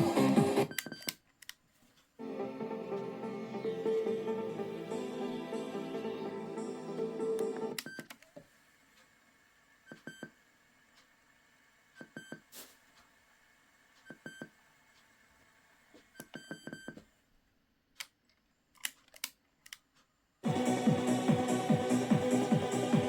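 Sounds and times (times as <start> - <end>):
loud music: 0.0 - 0.6, 2.2 - 7.7, 20.4 - 23.0.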